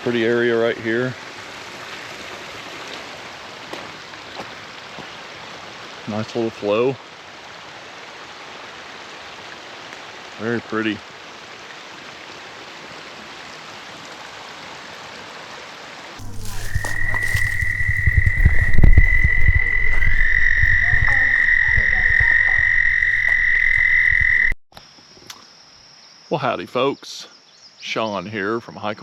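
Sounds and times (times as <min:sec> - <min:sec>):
frog high trill: 0:16.2 - 0:24.6
low rumble: 0:16.2 - 0:24.6.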